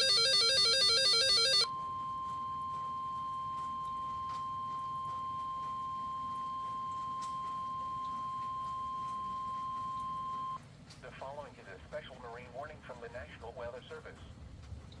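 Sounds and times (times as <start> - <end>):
steady alarm tone: 0.0 - 10.6
faint static clicks: 1.2 - 15.0.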